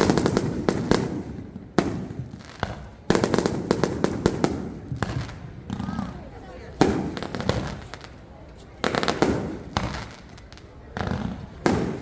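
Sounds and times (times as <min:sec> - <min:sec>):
fireworks crackling: 0:00.0 - 0:12.0
firework bang: 0:11.0 - 0:12.0.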